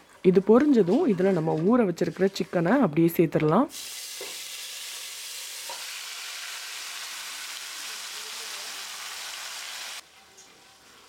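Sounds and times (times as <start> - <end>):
oil sizzling in a pot: 3.7 - 10.1.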